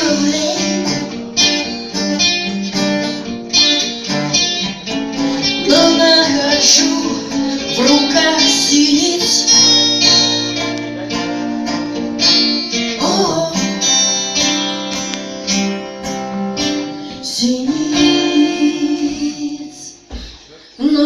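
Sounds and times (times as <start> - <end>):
woman singing: 0.0 - 1.8, 5.2 - 10.5, 12.7 - 14.9, 16.7 - 21.0
guitar strumming: 0.0 - 20.6.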